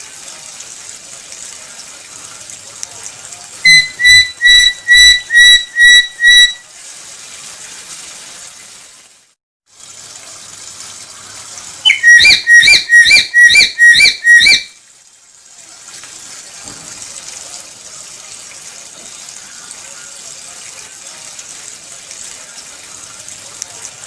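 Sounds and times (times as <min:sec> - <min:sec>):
parrot whistled calls: 0:03.7 - 0:06.6, 0:11.8 - 0:14.8.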